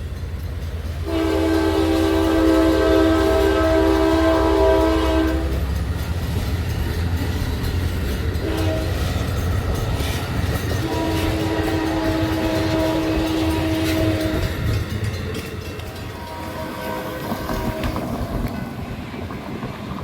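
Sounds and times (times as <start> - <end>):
moving train rumbling: 0.0 - 20.0
train horn blasts: 1.0 - 5.9, 8.4 - 9.3, 10.7 - 14.9, 16.0 - 18.6.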